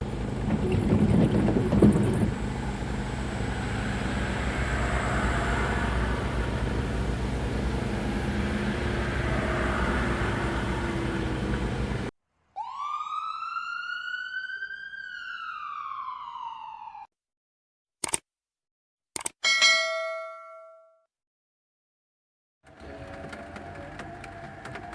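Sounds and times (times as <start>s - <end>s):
truck driving on road: 0.0s - 12.1s, 22.6s - 24.9s
siren-like wail: 12.6s - 17.1s.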